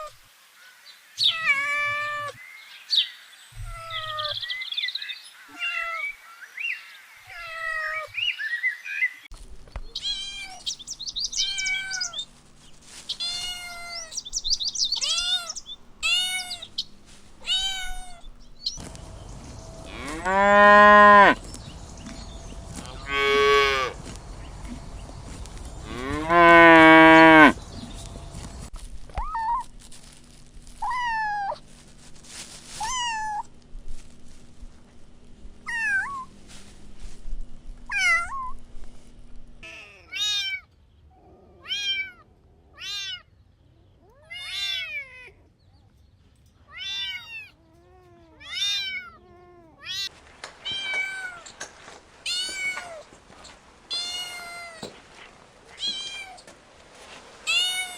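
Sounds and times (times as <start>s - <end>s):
kittens meowing: 3.6s - 4.4s, 9.8s - 12.3s, 13.2s - 18.8s, 42.8s - 43.3s, 44.0s - 45.4s, 46.7s - 51.5s, 53.9s - 55.0s.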